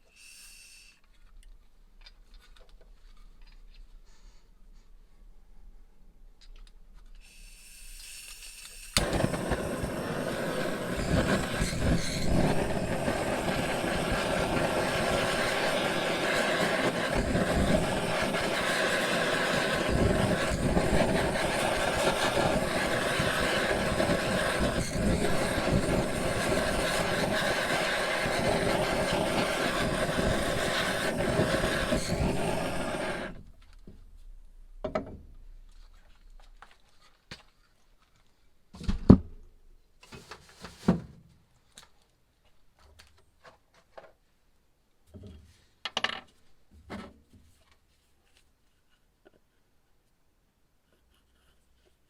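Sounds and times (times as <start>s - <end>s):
power tool running: 8.8s - 33.4s.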